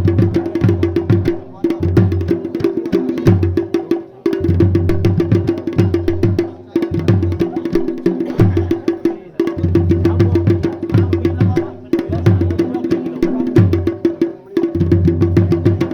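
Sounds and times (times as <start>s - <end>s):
fast loud drumming: 0.0s - 15.9s.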